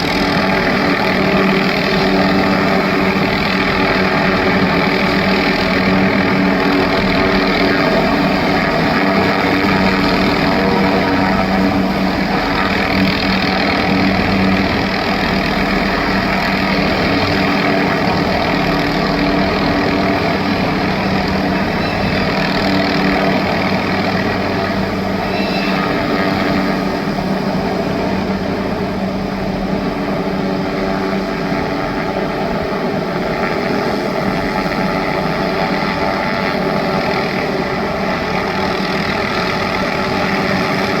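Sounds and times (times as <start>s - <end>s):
helicopter hovering: 0.0s - 41.0s.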